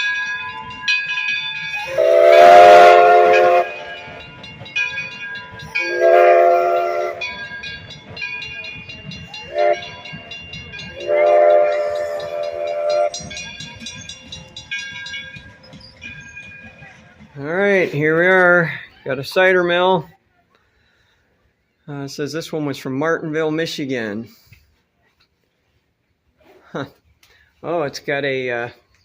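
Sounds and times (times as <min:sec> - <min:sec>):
bell ringing: 0:00.0 - 0:17.2
steam locomotive whistle blasts: 0:01.7 - 0:04.1, 0:05.8 - 0:07.4, 0:09.4 - 0:10.0, 0:10.9 - 0:13.4.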